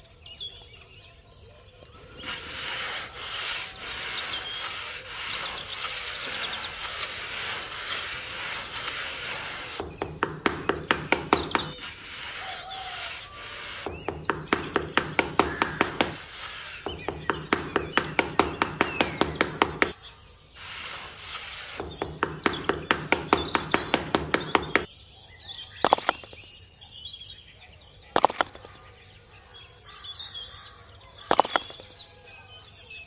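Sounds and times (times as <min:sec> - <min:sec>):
metal trowel scraping sand: 0:02.0 - 0:10.0, 0:10.7 - 0:17.1, 0:20.5 - 0:22.5, 0:25.8 - 0:26.4, 0:28.2 - 0:28.8, 0:31.3 - 0:31.9.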